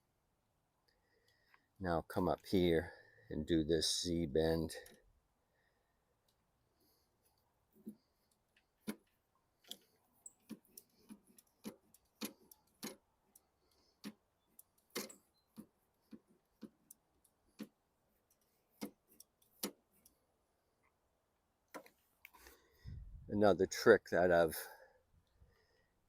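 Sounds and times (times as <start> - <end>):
metal parts clicking and tapping: 7.8 - 20.2.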